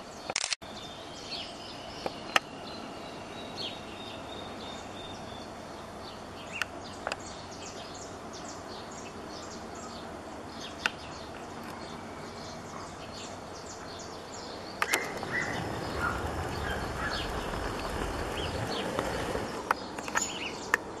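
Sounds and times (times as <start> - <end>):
birds chirping: 0.0 - 21.0
outdoor background noise: 0.0 - 21.0
sharp clicks: 0.3 - 0.6, 14.8 - 15.3
low rushing noise: 14.1 - 19.9.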